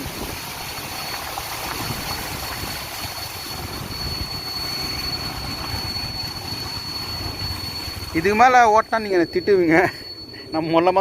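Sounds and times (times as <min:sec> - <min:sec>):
heavy rain: 0:00.0 - 0:08.2
wind buffeting microphone: 0:00.0 - 0:08.2.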